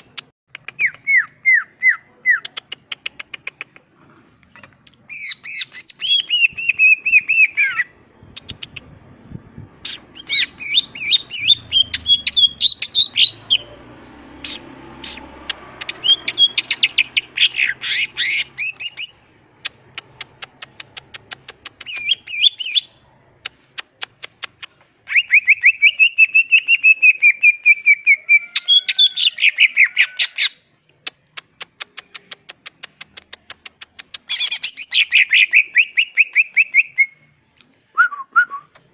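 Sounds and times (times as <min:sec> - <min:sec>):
bird singing chattering trills: 0:09.8 - 0:13.8, 0:14.4 - 0:22.9.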